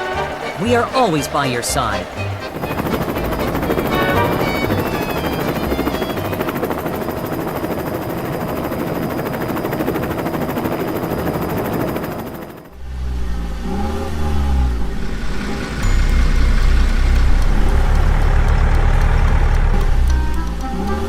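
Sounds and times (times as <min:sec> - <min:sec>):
helicopter rotor chopping: 0:00.0 - 0:12.8.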